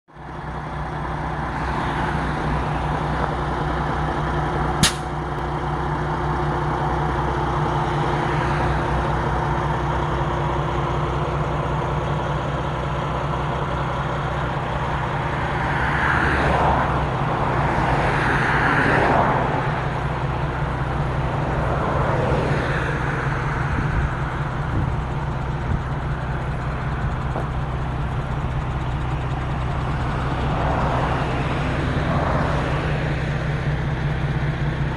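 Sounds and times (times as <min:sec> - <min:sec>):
truck diesel engine running: 0:00.1 - 0:34.9
sharp click: 0:04.8 - 0:05.2.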